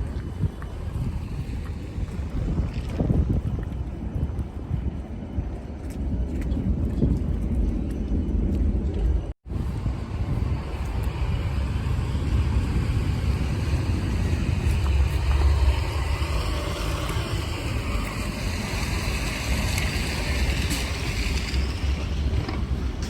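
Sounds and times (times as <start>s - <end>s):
wind buffeting microphone: 0.0s - 23.0s
outdoor street noise hiss: 9.5s - 23.0s.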